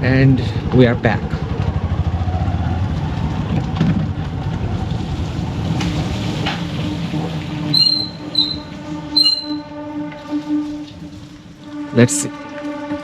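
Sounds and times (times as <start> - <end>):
motorcycle engine running: 0.1 - 6.1
short high-pitched squeaks: 7.7 - 9.8.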